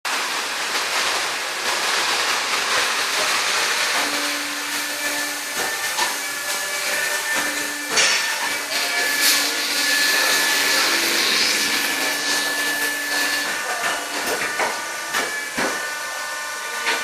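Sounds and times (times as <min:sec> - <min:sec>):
machine hum: 0:03.4 - 0:17.0.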